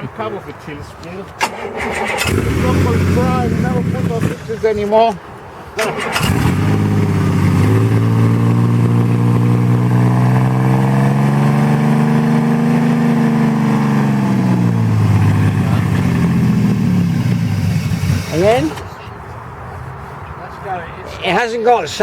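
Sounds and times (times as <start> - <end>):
vehicle engine running: 2.2 - 4.6, 6.1 - 19.0.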